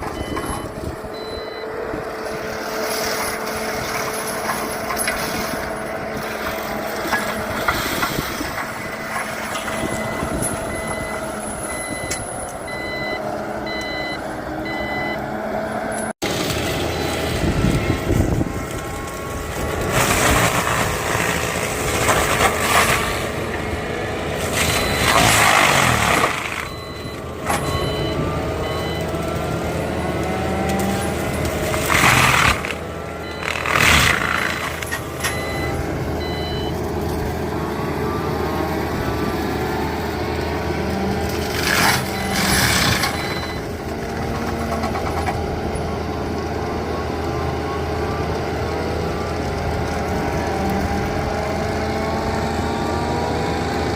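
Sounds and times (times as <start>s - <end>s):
reversing beeper beeps: 0.0s - 1.8s, 8.5s - 16.1s, 16.8s - 17.5s, 24.6s - 29.2s, 31.0s - 36.8s, 42.0s - 43.7s
forestry mulcher running: 0.0s - 53.9s.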